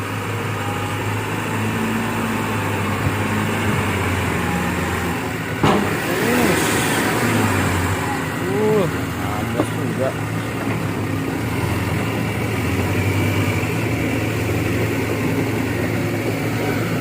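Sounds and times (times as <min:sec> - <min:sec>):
diesel truck engine running hard: 0:00.0 - 0:17.0
sharp knock: 0:05.6 - 0:06.0.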